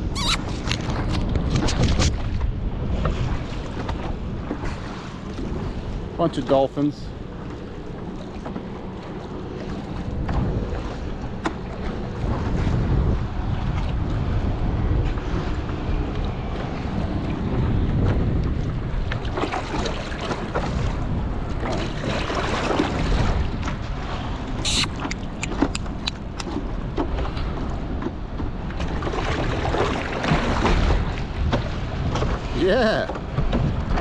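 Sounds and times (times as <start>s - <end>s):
water splashing around paddle craft: 0.0s - 34.0s
wind buffeting microphone: 0.0s - 34.0s
sharp clicks: 24.7s - 26.5s.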